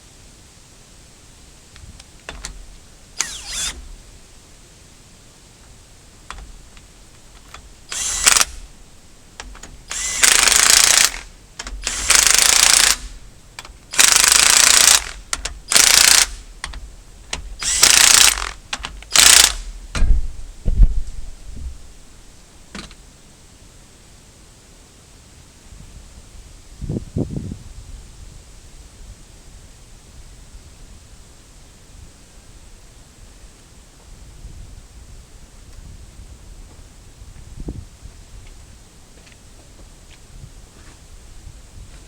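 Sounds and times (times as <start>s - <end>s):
light clicks and knocks: 1.8s - 2.8s
power tool bursts: 2.3s - 4.1s, 7.5s - 8.7s, 9.4s - 19.8s.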